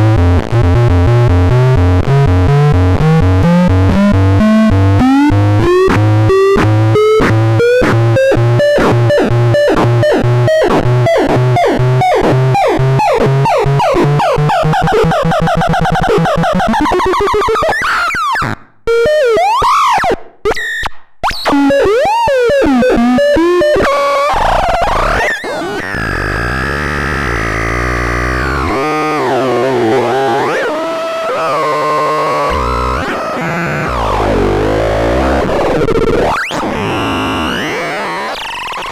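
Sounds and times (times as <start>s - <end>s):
synthesizer pulses and drone: 24.4s - 38.9s.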